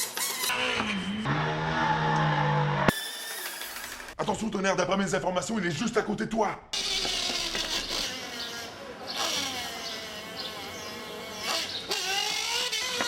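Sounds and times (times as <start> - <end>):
small motorbike engine revving: 0.0 - 3.0, 6.8 - 13.0.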